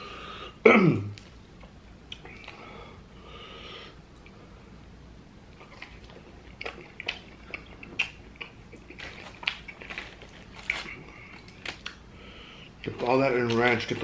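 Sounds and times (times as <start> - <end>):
open-mouthed chewing: 5.5 - 12.0.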